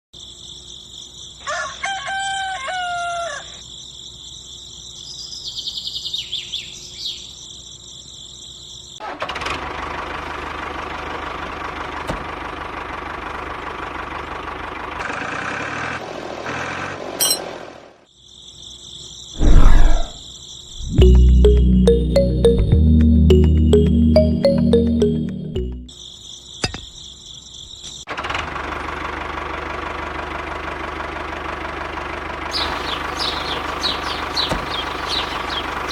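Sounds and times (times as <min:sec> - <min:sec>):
rooster crowing: 0:01.4 - 0:03.6.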